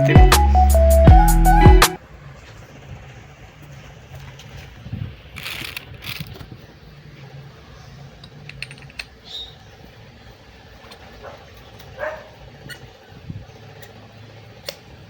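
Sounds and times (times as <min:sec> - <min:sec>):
scraping and rustling of tools: 0:05.4 - 0:06.6, 0:08.2 - 0:09.2.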